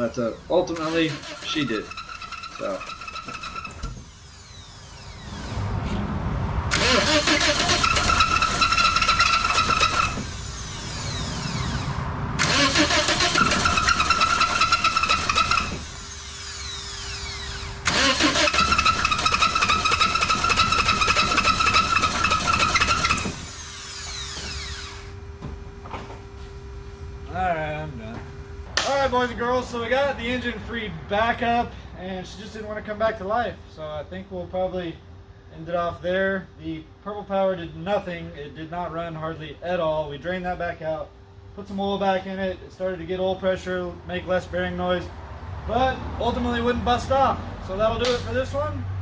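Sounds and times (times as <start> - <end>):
engine starter cranking: 0.5 - 5.7, 6.7 - 25.1, 48.0 - 48.7.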